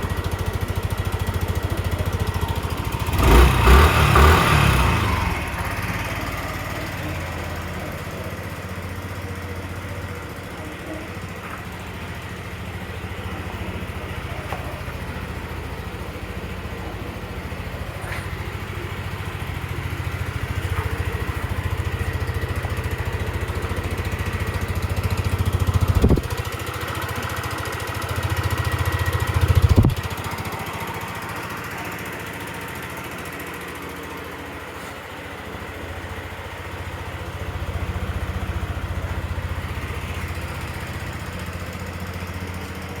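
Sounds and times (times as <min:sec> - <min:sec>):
scooter engine idling and revving: 0:00.0 - 0:43.0.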